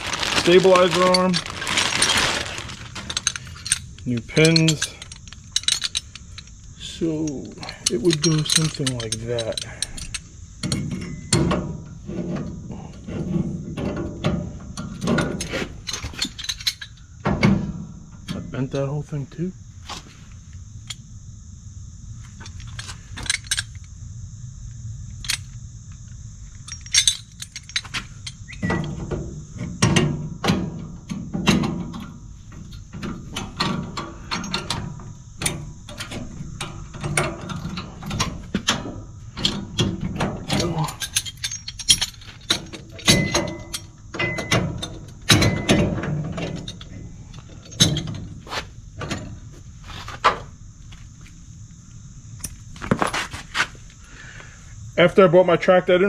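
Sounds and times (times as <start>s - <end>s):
metal clinks and clunks: 0.1s - 11.5s, 14.8s - 17.0s, 22.4s - 23.9s, 26.4s - 29.0s, 39.4s - 48.3s
metal clicks and clanks: 0.4s - 11.7s, 26.6s - 48.3s.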